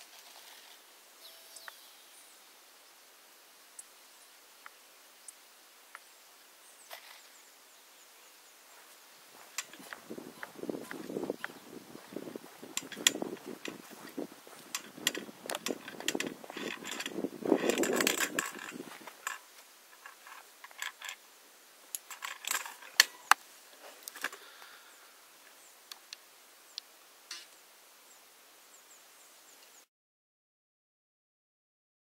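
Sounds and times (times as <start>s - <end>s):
faint hiss: 0.0s - 29.9s
camera handling clicks and rustling: 12.8s - 19.4s, 22.0s - 23.4s.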